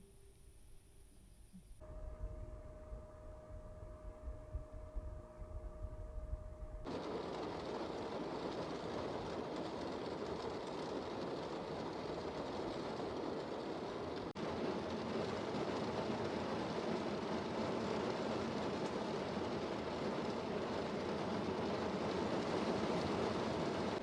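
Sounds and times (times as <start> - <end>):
steady hum: 0.0 - 16.2
low rumble: 1.4 - 10.4
heavy rain: 6.9 - 24.0.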